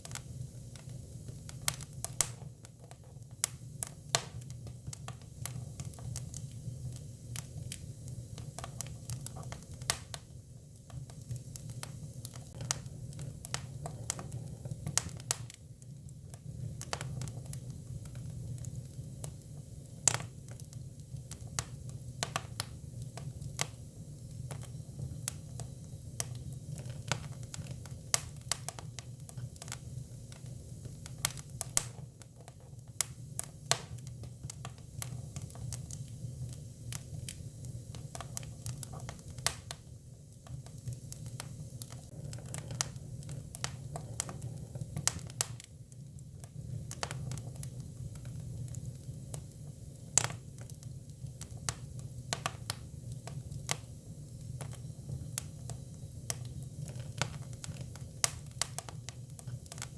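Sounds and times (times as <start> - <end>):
firewood crackling and popping: 0.0 - 59.9
low rumble of fire: 0.0 - 59.9.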